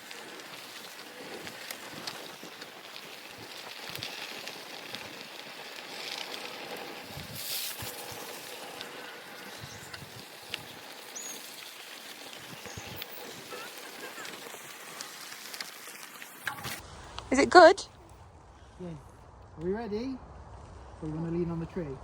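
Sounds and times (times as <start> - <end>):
wind buffeting microphone: 7.0 - 8.5, 9.4 - 13.5.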